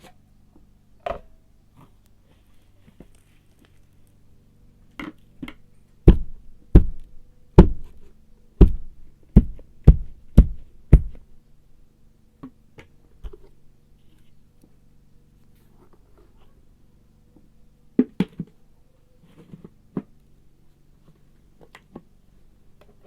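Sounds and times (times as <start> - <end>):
faint steady hum: 0.0 - 23.0
sharp knocks: 6.1 - 8.0.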